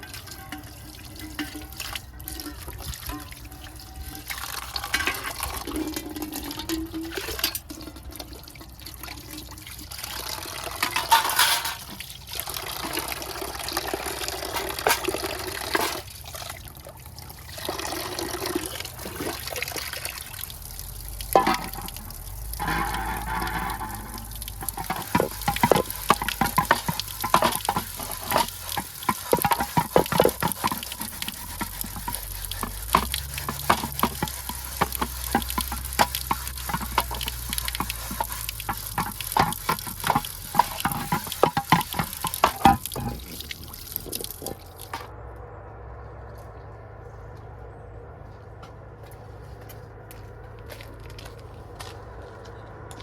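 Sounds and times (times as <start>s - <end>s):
utensil clinking against pan: 10.8s - 12.0s, 21.4s - 43.4s.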